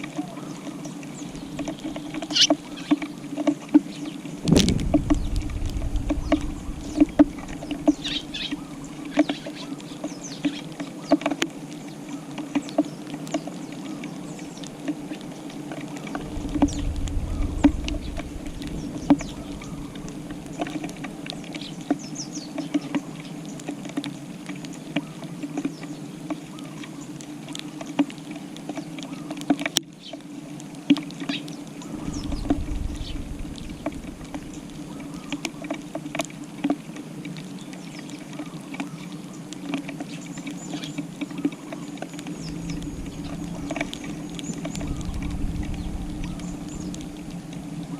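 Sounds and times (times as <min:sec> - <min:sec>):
birds pecking on tile floor: 0:00.0 - 0:47.9
low rumble: 0:04.4 - 0:09.0, 0:16.0 - 0:21.6, 0:31.8 - 0:35.6, 0:42.4 - 0:47.6
low steady hum: 0:04.4 - 0:09.1, 0:16.0 - 0:21.9, 0:31.7 - 0:35.8, 0:42.2 - 0:47.9.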